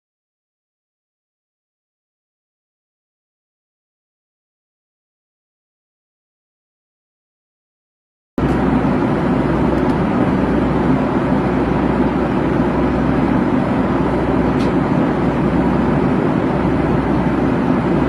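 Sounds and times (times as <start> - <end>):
aircraft engines roaring: 8.4 - 18.0.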